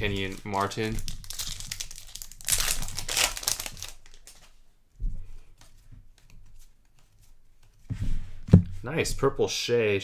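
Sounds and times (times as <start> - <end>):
plastic wrapper crinkling: 0.0 - 4.6
soft thump: 7.9 - 8.9.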